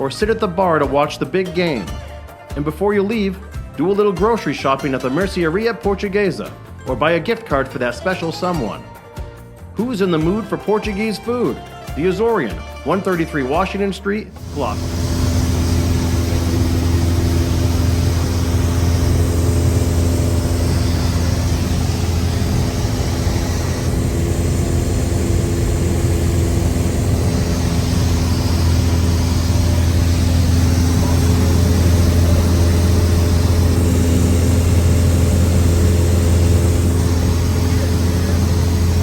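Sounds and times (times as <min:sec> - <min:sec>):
light aircraft engine droning: 0:14.4 - 0:39.0.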